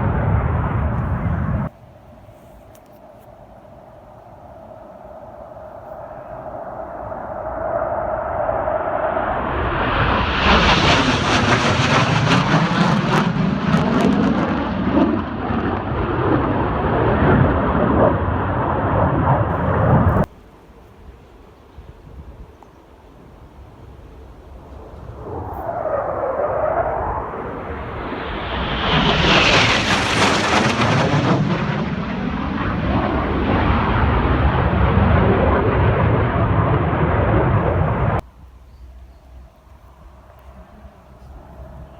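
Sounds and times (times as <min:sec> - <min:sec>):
jet roaring past: 0:00.0 - 0:01.7, 0:04.9 - 0:20.3, 0:24.3 - 0:38.2.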